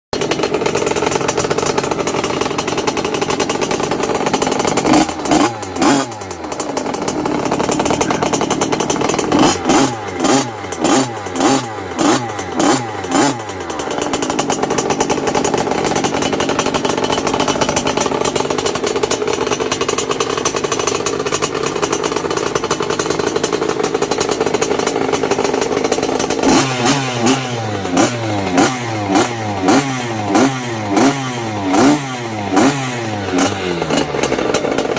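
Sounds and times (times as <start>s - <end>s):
pit bike engine revving: 0.2s - 34.9s.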